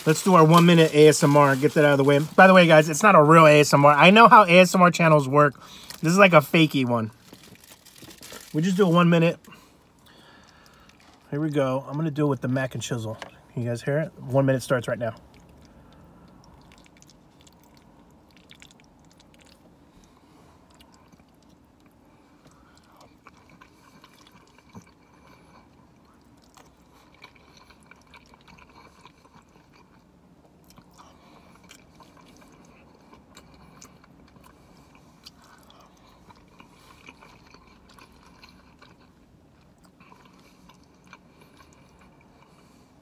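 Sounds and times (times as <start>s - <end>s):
faint chewing: 7.1s - 12.2s, 15.1s - 43.0s.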